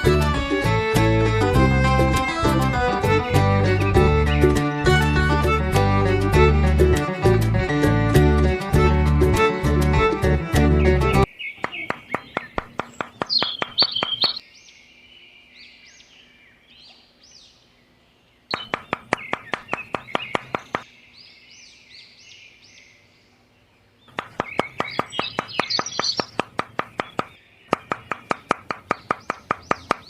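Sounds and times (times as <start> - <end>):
small birds chirping: 10.6 - 30.0
quick regular tapping: 11.6 - 14.4, 18.5 - 20.9, 24.1 - 30.0.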